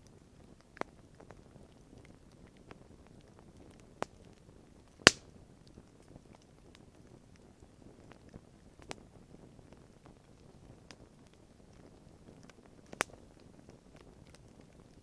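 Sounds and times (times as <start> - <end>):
campfire crackling faintly: 0.0 - 15.0
sharp pops of fire: 5.1 - 5.3.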